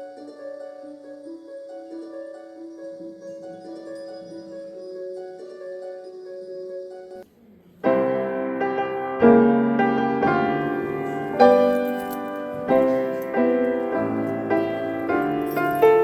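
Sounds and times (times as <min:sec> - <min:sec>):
piano playing slow chords: 0:07.9 - 0:16.0.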